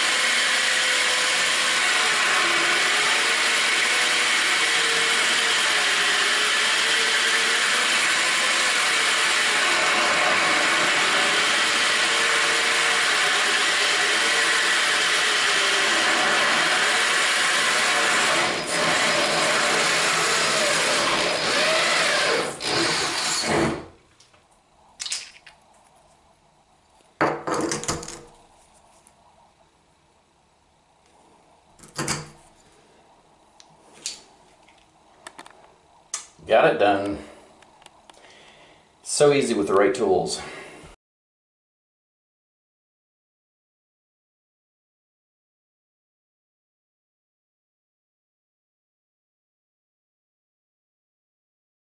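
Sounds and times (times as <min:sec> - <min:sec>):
drill grinding through tile: 0:00.0 - 0:23.9.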